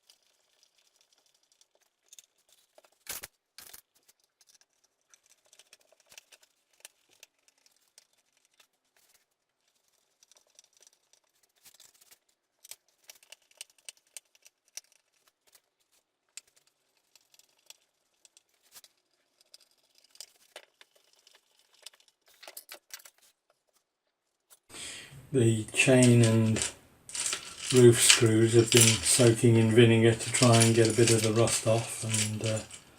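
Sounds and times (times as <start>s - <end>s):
clicks and taps of small parts: 30.3s - 32.8s.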